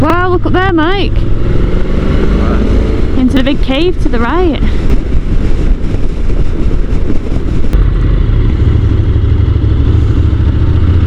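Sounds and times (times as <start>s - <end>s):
motorcycle engine running: 0.0s - 11.0s
road and wind rumble: 0.0s - 11.0s.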